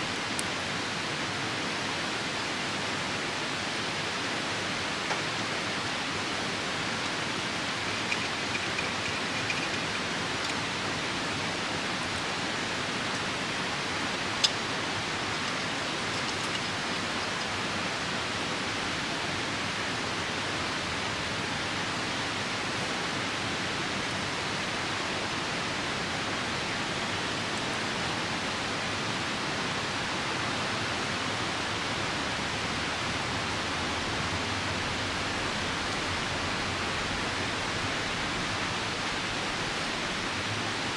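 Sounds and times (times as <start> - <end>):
rain: 0.0 - 40.9
river rushing: 0.0 - 40.9
campfire crackling: 5.1 - 17.8.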